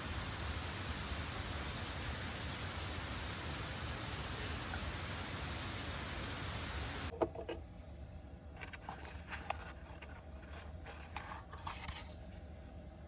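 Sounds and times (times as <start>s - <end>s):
steady hiss: 0.0s - 7.1s.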